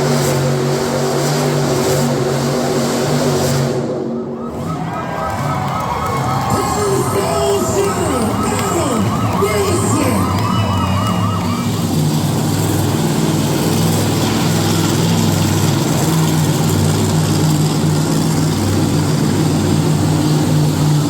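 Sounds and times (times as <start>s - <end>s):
monster truck engine droning: 0.0s - 21.0s
warbling siren-like tone: 3.9s - 12.1s.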